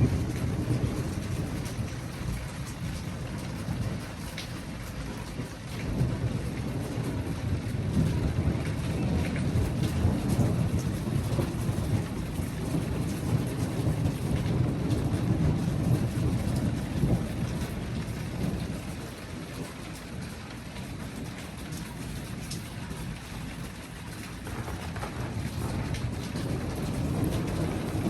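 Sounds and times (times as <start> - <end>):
rolling thunder: 0.0 - 28.0
steady rain: 0.0 - 28.0.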